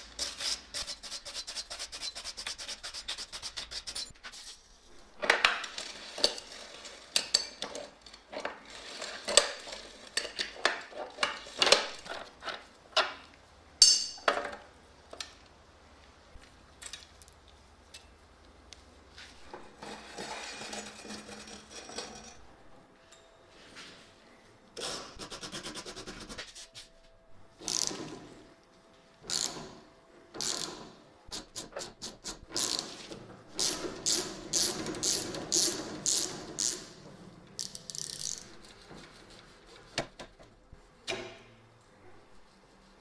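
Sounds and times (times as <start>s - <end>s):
clicks knocks and scraping on bicycle parts: 5.2s - 15.5s, 37.6s - 41.5s.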